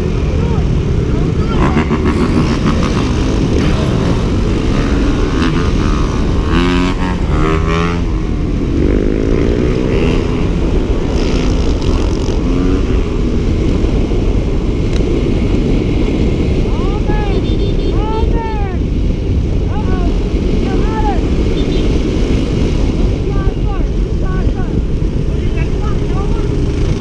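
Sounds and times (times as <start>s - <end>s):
dirt bike engine rumbling: 0.0s - 27.0s.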